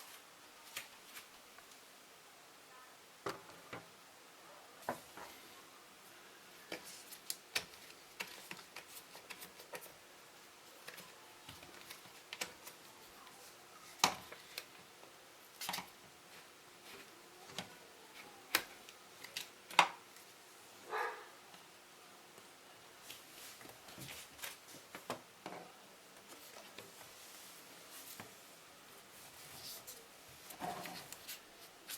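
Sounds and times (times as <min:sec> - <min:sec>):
clicks and knocks of objects handled: 0:06.7 - 0:10.0, 0:10.8 - 0:12.9, 0:15.6 - 0:16.0, 0:16.9 - 0:20.3.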